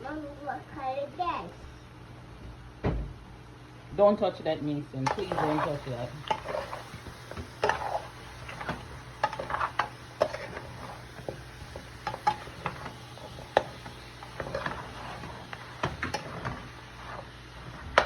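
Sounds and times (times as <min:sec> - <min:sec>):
light sizzle: 0:00.0 - 0:18.0
spoon stirring and scraping pot: 0:05.1 - 0:18.0.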